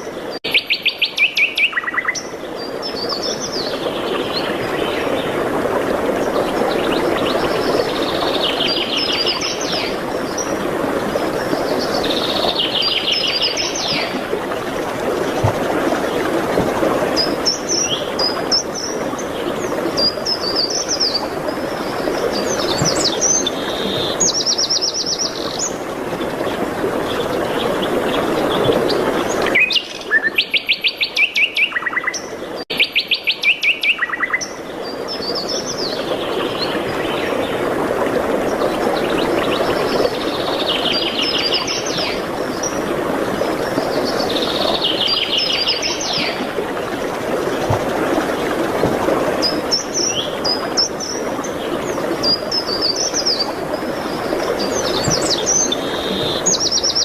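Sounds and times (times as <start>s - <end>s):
songbirds singing and chirping: 0.0s - 5.4s, 17.1s - 37.6s, 49.3s - 57.0s.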